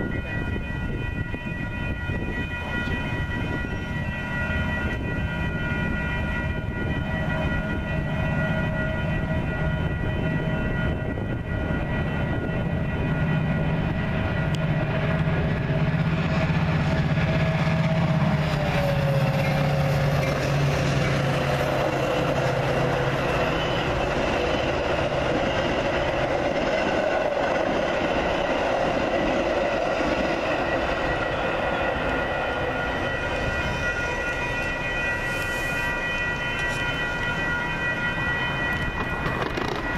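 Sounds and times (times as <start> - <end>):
locomotive engine hum: 2.5 - 39.9
train wheels clattering on rails: 13.8 - 34.9, 36.5 - 39.9.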